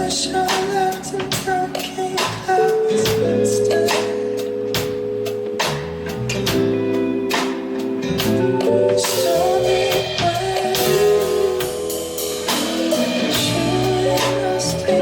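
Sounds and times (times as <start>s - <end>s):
person singing: 0.0s - 4.9s, 8.2s - 15.0s
band playing guitar and drums: 0.0s - 15.0s.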